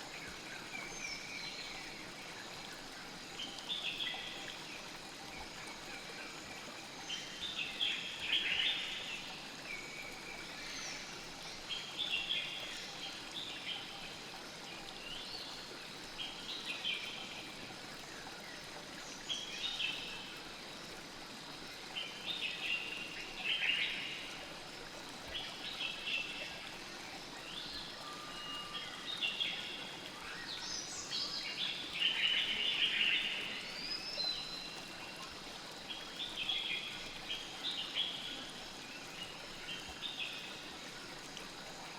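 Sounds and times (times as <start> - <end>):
river flowing: 0.0 - 41.9.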